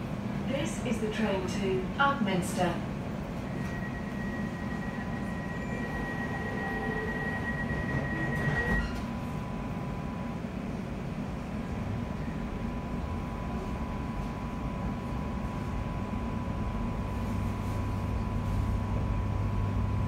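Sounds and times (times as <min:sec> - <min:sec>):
train carriage rumble and hum: 0:00.0 - 0:20.0
thin high whine: 0:03.4 - 0:09.2.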